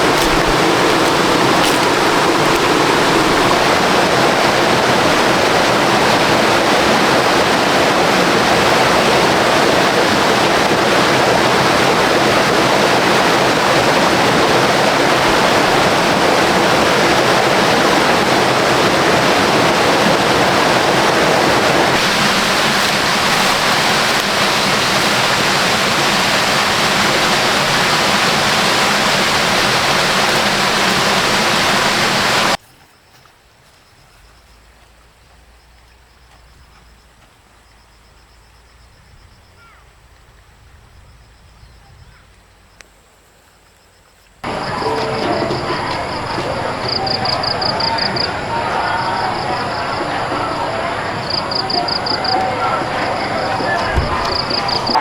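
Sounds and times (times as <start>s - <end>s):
waterfall rushing: 0.0s - 32.6s, 44.4s - 55.0s.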